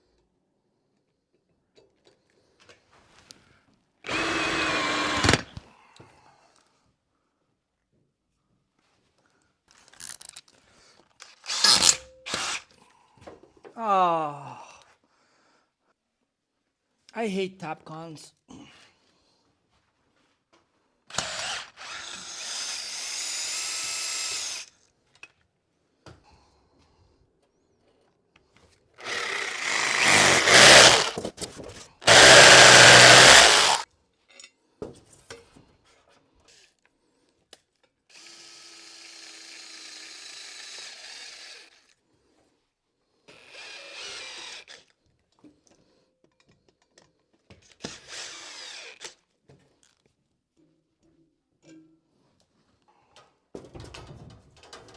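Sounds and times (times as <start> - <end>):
power drill driving screws: 4.1 - 5.6, 11.2 - 12.7, 21.1 - 24.7, 29.0 - 31.3, 32.0 - 33.8, 43.3 - 44.9, 47.8 - 49.2.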